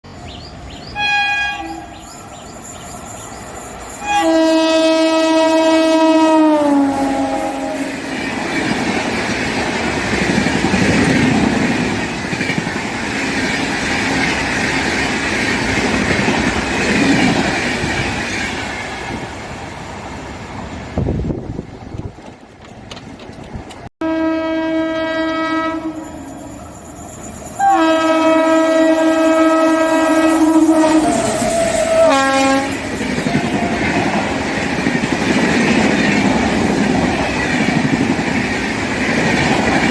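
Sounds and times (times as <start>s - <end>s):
train horn blast: 1.0s - 2.0s, 4.0s - 8.1s, 24.0s - 26.6s, 27.6s - 33.9s
train wheels clattering over rail joints: 7.0s - 18.9s, 21.4s - 23.9s.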